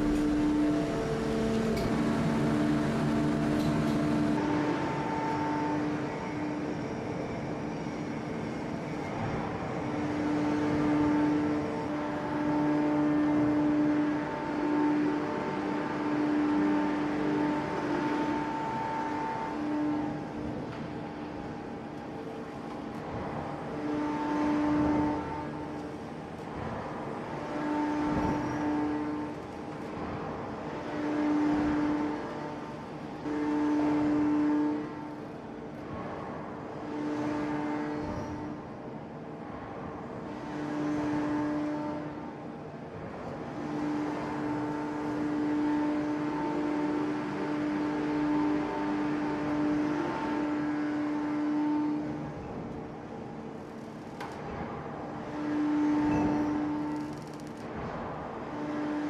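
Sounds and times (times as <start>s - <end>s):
mechanical rumble: 0.0s - 5.4s
two-note machine whine: 0.0s - 7.4s.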